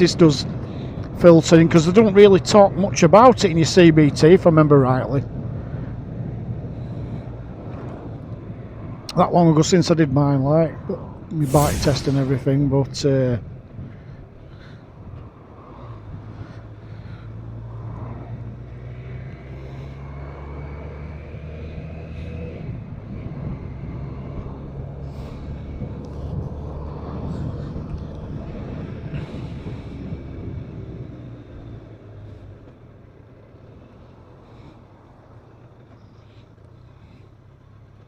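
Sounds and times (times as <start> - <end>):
wind on microphone: 11.4 - 13.0
road noise: 11.4 - 13.2, 14.8 - 38.0.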